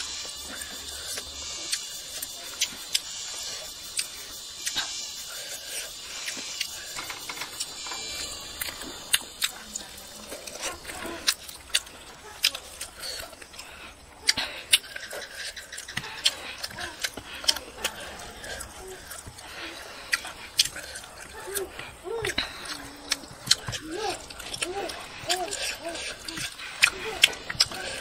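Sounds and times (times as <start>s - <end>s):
person chewing and lip-smacking: 0.0s - 28.0s
wet clicks and crunches: 8.6s - 28.0s.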